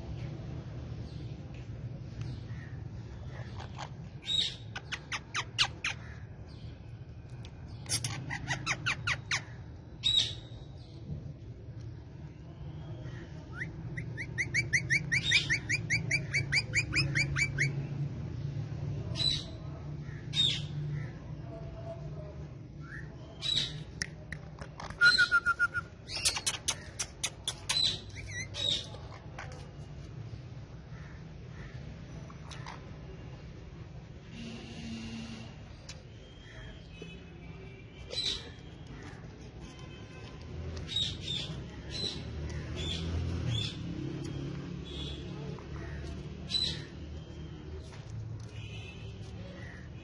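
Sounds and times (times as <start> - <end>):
parakeet squawking: 3.3 - 6.2, 7.8 - 9.5, 13.6 - 17.8
parakeet chattering notes: 3.4 - 6.0, 7.8 - 9.5, 13.6 - 17.8, 26.1 - 29.3.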